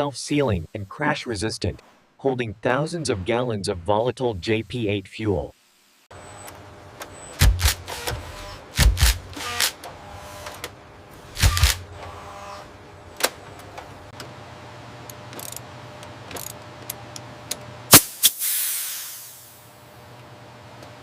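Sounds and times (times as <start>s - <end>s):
hiss of released air: 17.9s - 19.8s.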